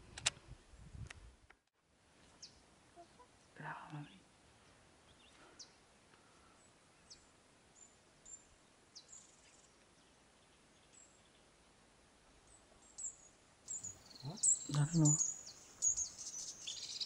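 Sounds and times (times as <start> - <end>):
faint high bird chirps: 12.5 - 17.0.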